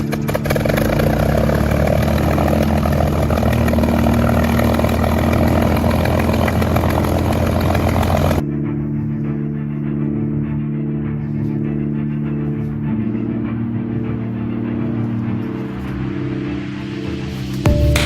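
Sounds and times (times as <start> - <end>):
engine humming steadily: 0.0 - 8.4.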